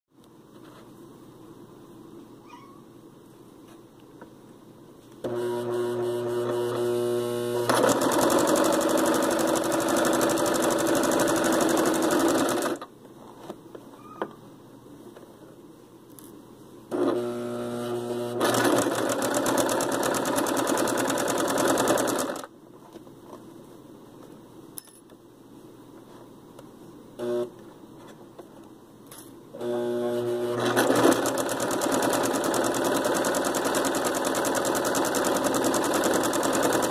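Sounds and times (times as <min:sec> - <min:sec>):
electric sewing machine stitching: 0:05.2 - 0:12.9, 0:16.9 - 0:22.5, 0:27.2 - 0:27.5, 0:29.6 - 0:36.9.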